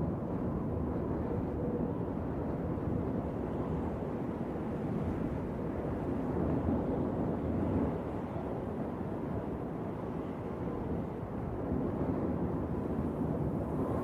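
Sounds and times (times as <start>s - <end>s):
wind blowing: 12.0s - 14.0s.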